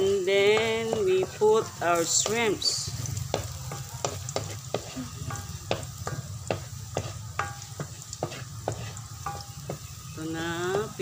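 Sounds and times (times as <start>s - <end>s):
garlic and onions sizzling in oil: 0.0s - 11.0s
spatula scraping and knocking a pan: 0.0s - 11.0s.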